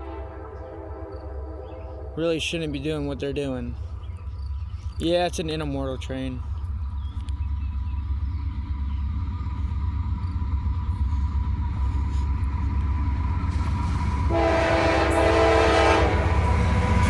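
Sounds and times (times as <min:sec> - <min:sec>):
train horn blast: 0:00.0 - 0:02.4, 0:14.2 - 0:17.0
diesel locomotives rumbling: 0:00.0 - 0:17.0.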